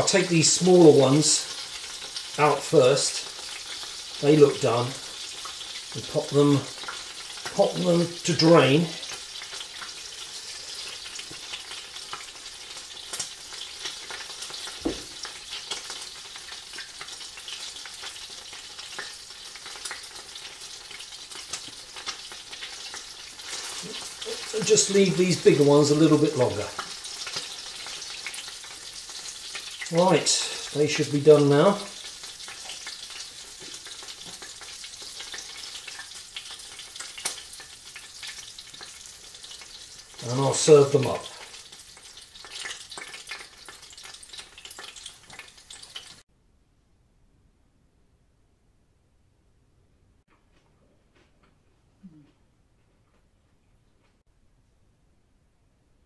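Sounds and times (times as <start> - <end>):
oysters sizzling in a frying pan: 0.0 - 46.3
knock: 14.8 - 15.1.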